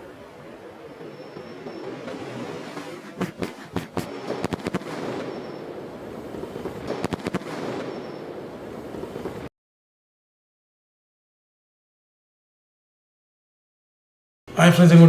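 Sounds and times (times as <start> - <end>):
firework shells bursting: 0.0 - 9.5
steady background noise: 0.0 - 9.5.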